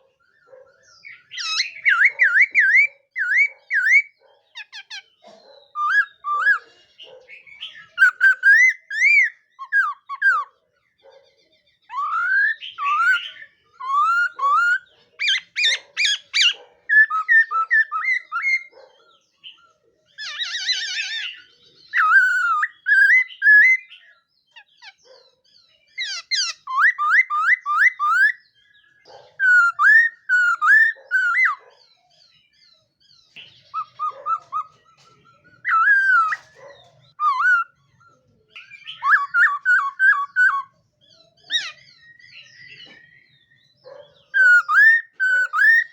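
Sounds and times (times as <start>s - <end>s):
bird singing whistled phrases: 0.8s - 6.6s, 7.4s - 10.5s, 11.9s - 18.7s, 20.2s - 24.2s, 26.0s - 28.4s, 29.4s - 31.6s, 35.6s - 36.5s, 37.2s - 37.8s, 38.5s - 43.6s, 44.2s - 45.9s.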